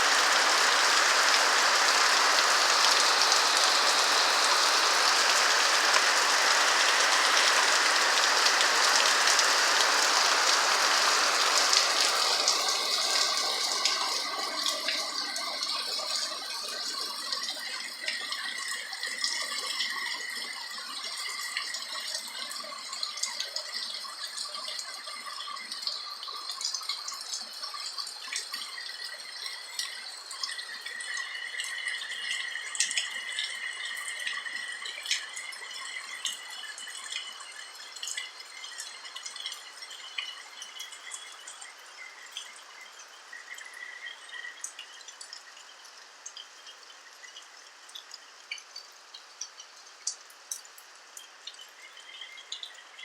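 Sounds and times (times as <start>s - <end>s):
rain on a roof: 0.0s - 53.0s.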